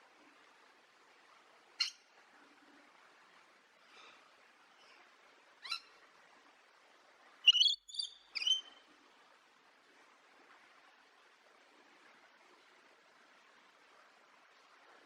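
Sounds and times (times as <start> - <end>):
songbird chirping: 7.4 - 8.8.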